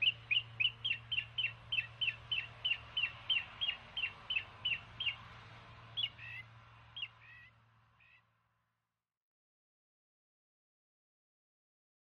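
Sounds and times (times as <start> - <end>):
bird chirping: 0.0 - 5.2.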